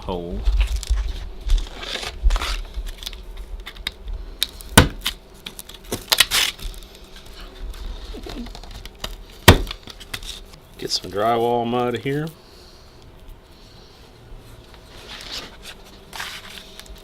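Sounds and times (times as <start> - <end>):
drywall patch scraping: 14.9 - 16.7.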